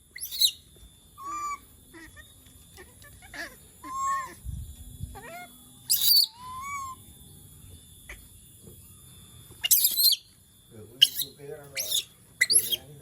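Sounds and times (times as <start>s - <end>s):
monkey harsh shriek: 0.2s - 0.6s, 3.2s - 4.4s, 5.2s - 7.0s, 9.6s - 10.3s, 11.0s - 12.8s
monkey whimpering coo calls: 1.2s - 4.4s, 5.2s - 7.0s.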